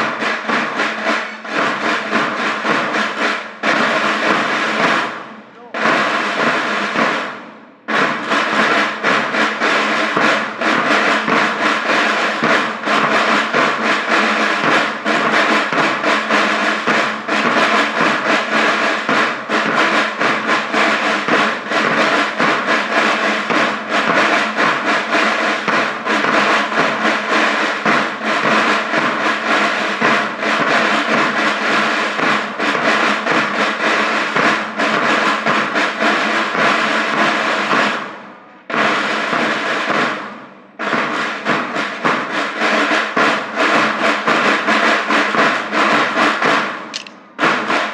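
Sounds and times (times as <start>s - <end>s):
snare and bass drums: 0.0s - 47.9s.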